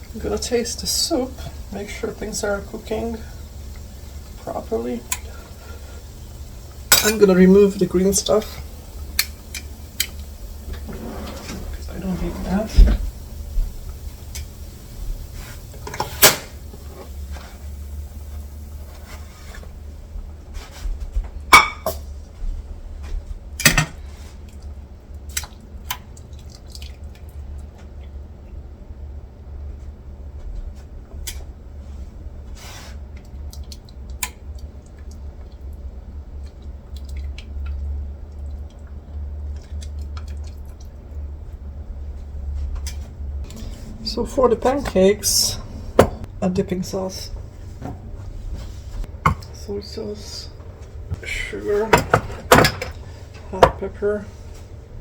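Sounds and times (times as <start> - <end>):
steady low hum: 0.0 - 55.0
kitchen utensils and dishes clicking: 51.9 - 53.0.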